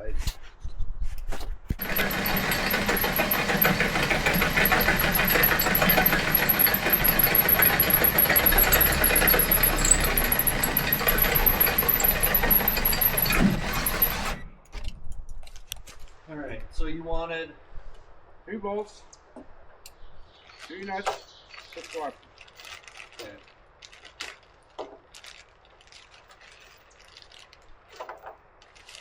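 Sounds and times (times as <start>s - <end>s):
power drill grinding and whining: 1.7s - 14.8s.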